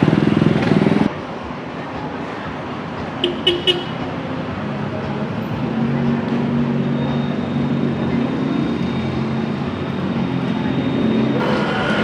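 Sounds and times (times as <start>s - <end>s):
street traffic: 0.0s - 12.0s
vehicle engine passing: 7.7s - 12.0s.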